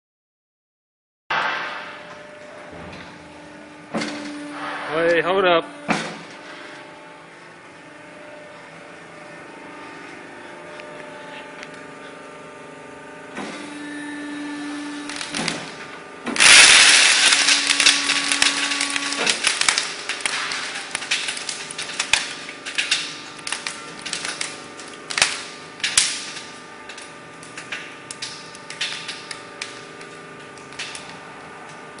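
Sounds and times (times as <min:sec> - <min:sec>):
steady hum: 0:01.3 - 0:32.0
bubble wrap popping: 0:16.4 - 0:22.4.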